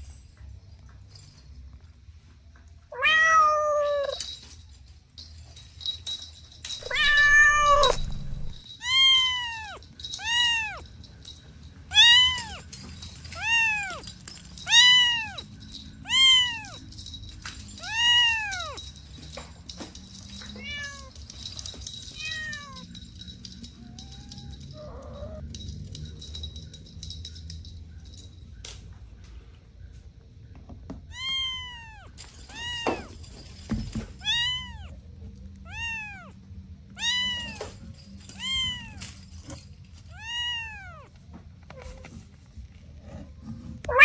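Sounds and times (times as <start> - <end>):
cat meowing: 2.9 - 4.2, 6.8 - 10.9, 11.9 - 12.7, 13.3 - 15.4, 16.0 - 16.8, 17.8 - 18.8, 20.6 - 21.1, 22.2 - 22.9, 23.8 - 25.4, 31.1 - 33.2, 34.2 - 39.1, 40.1 - 42.1.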